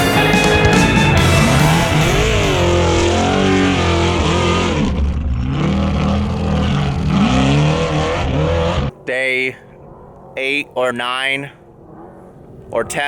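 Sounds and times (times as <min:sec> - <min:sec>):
truck engine revving: 0:00.0 - 0:08.9.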